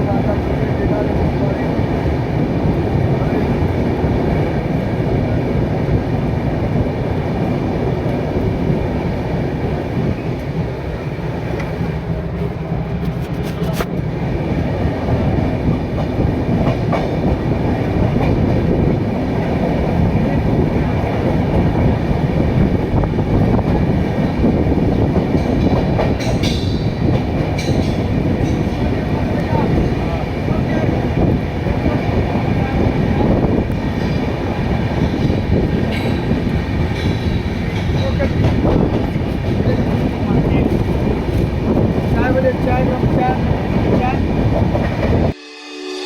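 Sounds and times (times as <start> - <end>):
train rumbling past: 0.0 - 46.0
wheels clicking over rail joints: 25.2 - 30.2, 35.0 - 43.2.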